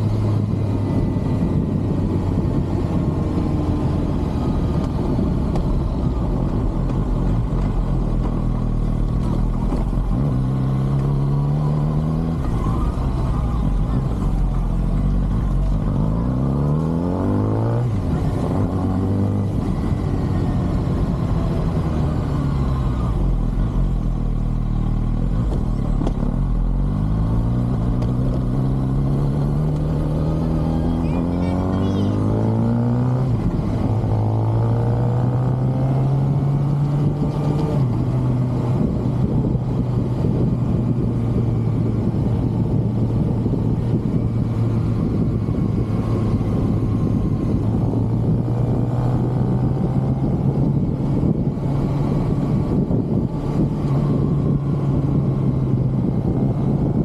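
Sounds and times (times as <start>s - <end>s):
motorcycle engine revving through gears: 0.0s - 57.0s.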